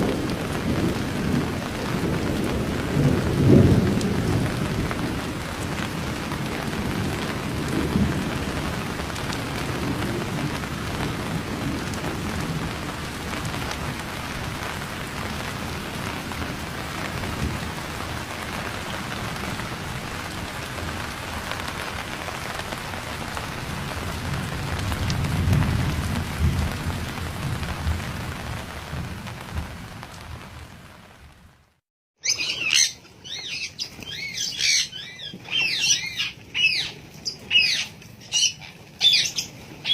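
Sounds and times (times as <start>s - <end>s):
thunder rumbling: 0.0s - 31.6s
heavy rain: 0.0s - 39.9s
birds squawking and calling: 32.2s - 39.9s.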